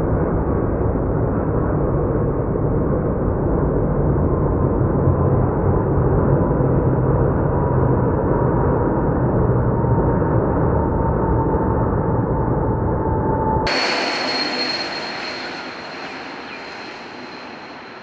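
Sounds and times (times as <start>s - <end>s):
faint high whine: 13.7s - 18.0s
jet engines rumbling: 13.7s - 18.0s.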